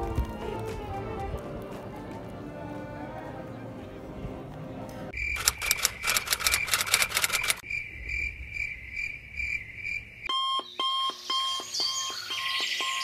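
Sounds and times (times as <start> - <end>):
high alarm clock beeping: 10.3 - 13.0
lower alarm beep pattern: 10.3 - 13.0.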